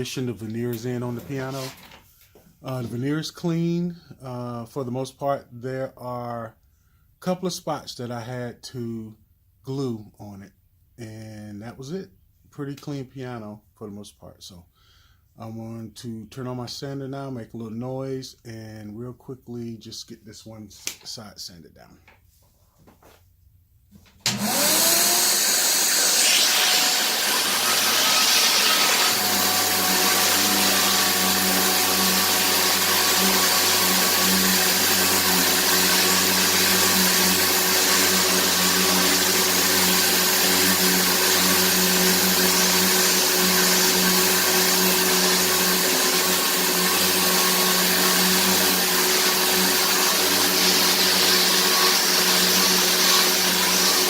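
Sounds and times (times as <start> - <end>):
electric power sander whining: 24.3 - 54.0.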